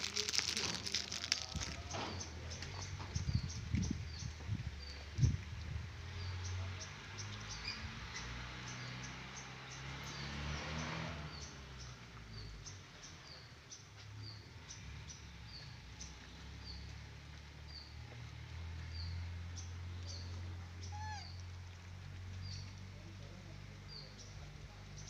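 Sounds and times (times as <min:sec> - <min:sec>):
small bird chirping: 0:18.8 - 0:21.7.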